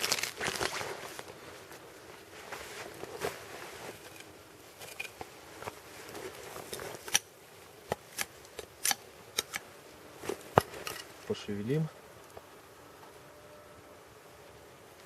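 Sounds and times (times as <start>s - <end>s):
wood fire crackling and popping: 0.0s - 1.3s.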